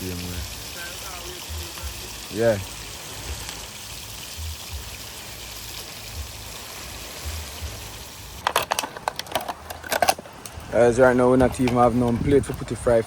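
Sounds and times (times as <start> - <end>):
fish sizzling in oil: 0.0 - 8.7
wind rumbling on microphone: 9.6 - 13.0.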